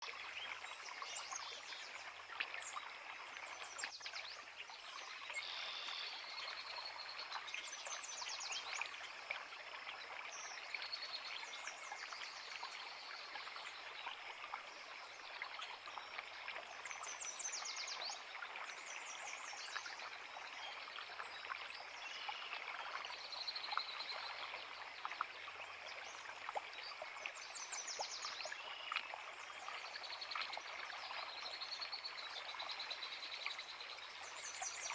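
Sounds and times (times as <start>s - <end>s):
creek flowing: 0.0s - 34.9s
songbirds singing: 15.0s - 34.9s.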